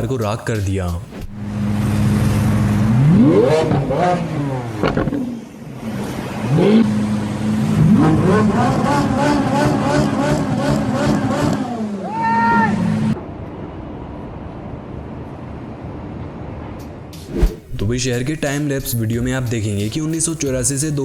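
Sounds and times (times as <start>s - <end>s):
car engine revving: 1.0s - 12.0s
exhaust pops: 2.9s - 5.3s.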